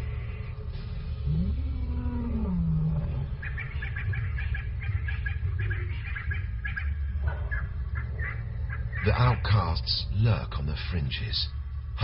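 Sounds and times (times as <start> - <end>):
lion growling: 0.0 - 4.2.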